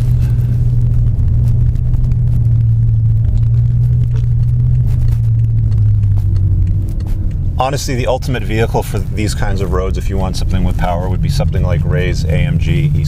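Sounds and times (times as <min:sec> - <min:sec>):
car engine droning inside cabin: 0:00.0 - 0:13.0
tyre and road rumble: 0:00.0 - 0:13.0.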